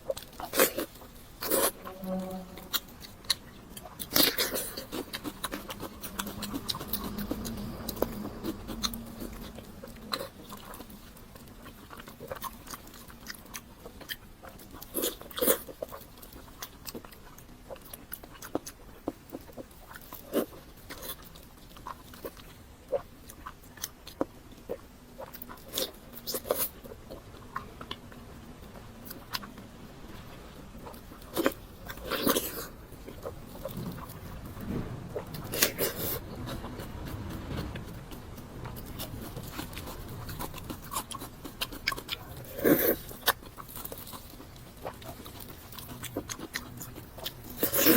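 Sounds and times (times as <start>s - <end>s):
person chewing crunchy food: 0.0s - 47.9s.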